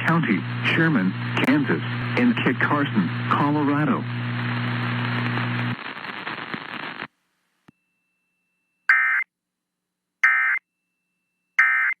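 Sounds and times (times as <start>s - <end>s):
radio hiss: 0.0s - 7.1s.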